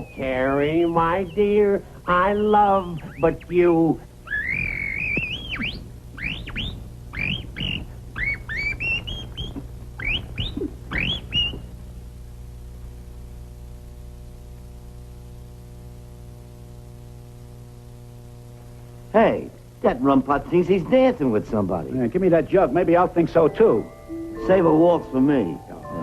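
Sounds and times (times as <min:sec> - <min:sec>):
steady low hum: 0:00.0 - 0:26.0
canary chirping: 0:04.3 - 0:11.7.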